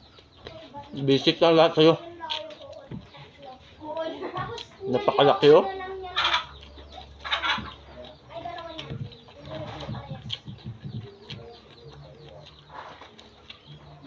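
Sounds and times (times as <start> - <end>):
birds calling: 0.0 - 14.0
man chewing food: 0.0 - 14.0.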